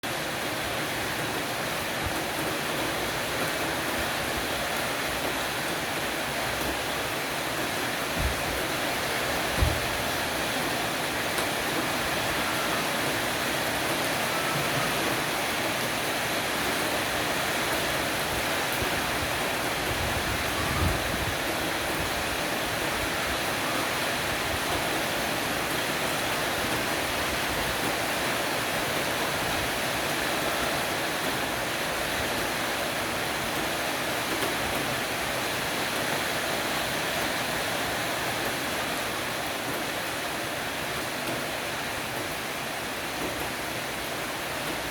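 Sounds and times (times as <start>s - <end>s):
heavy rain on a roof: 0.0s - 44.9s
soft low thud: 9.6s - 9.9s.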